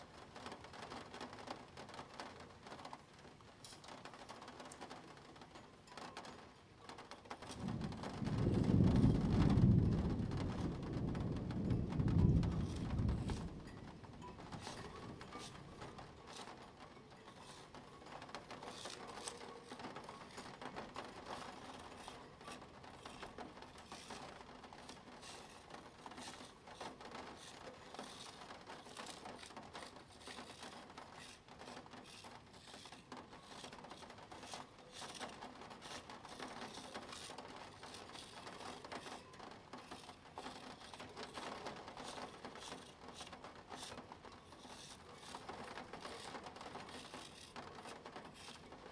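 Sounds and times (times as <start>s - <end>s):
plastic gear wheel clicking: 18.3s - 20.4s, 26.2s - 39.2s, 39.8s - 48.9s.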